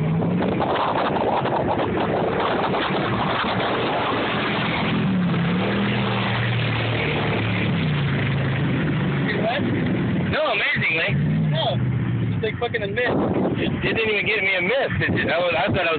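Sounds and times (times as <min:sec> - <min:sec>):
water splashing: 0:00.0 - 0:12.3
truck engine revving: 0:00.0 - 0:15.9.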